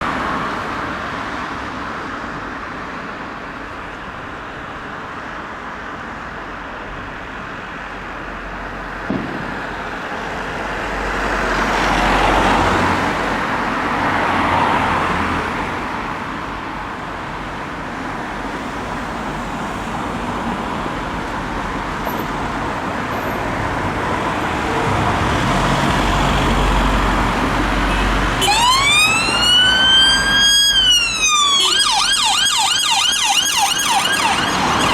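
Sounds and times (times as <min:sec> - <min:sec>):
road traffic passing: 0:00.0 - 0:34.9
sharp knock: 0:09.1 - 0:10.0
police siren rising: 0:27.9 - 0:34.9.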